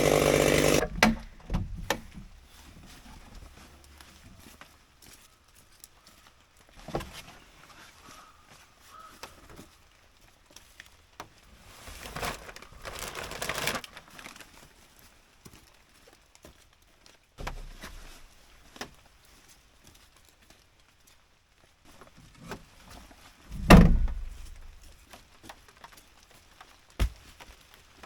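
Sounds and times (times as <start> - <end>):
crinkling and rustling: 0.0 - 28.0
dull thud: 23.5 - 24.8.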